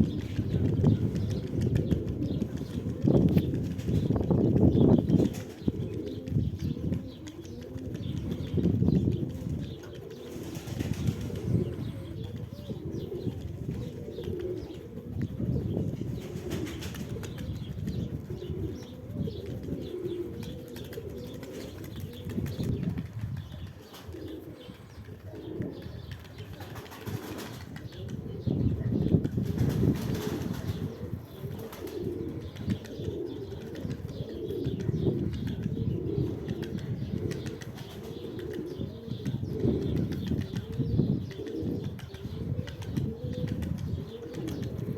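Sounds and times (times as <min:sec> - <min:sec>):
wings flapping: 0:00.0 - 0:25.3, 0:26.0 - 0:28.2, 0:29.2 - 0:35.7, 0:36.4 - 0:38.7
pigeons cooing: 0:00.0 - 0:44.9.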